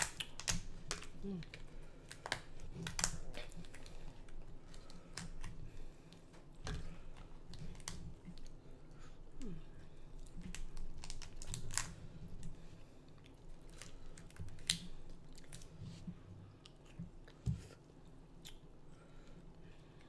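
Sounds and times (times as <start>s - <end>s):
shellfish shell cracking: 0.0s - 4.0s, 10.4s - 12.5s, 13.6s - 15.7s.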